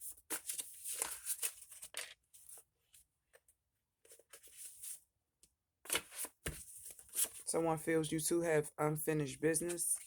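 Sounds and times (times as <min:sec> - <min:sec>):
cards rustling and sliding: 0:00.3 - 0:02.6.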